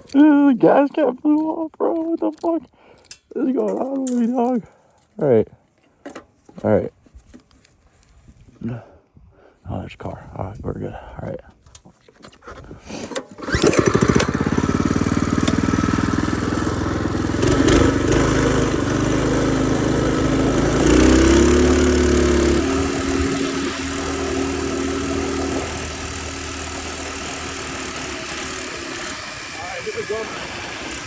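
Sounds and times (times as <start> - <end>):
mini bike engine running: 13.4 - 31.0.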